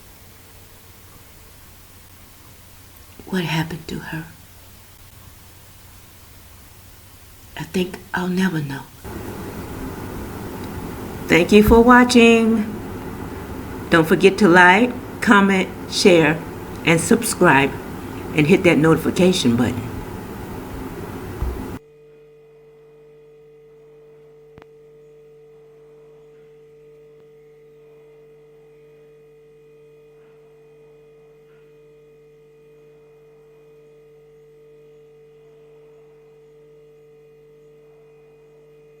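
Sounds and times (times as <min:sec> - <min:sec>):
low electrical hum: 0:00.0 - 0:21.8
burst of noise: 0:09.1 - 0:21.8.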